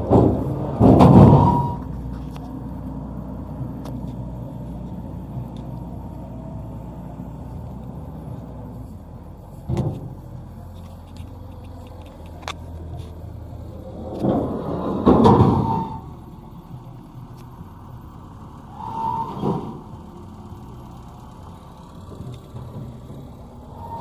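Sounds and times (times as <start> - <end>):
engine humming: 0.0 - 24.0
thump: 0.1 - 1.8, 15.0 - 15.8.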